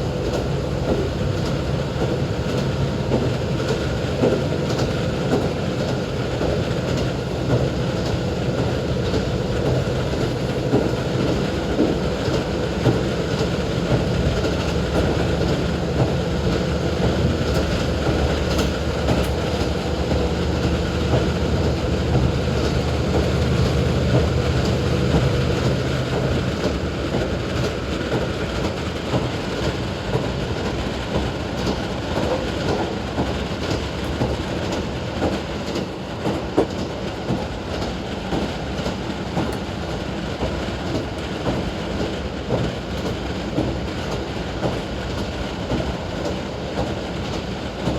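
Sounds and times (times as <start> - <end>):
wheel and rail noise: 0.0 - 47.9
wheels clacking over rail joints: 0.1 - 47.9
diesel engine hum: 12.8 - 26.7.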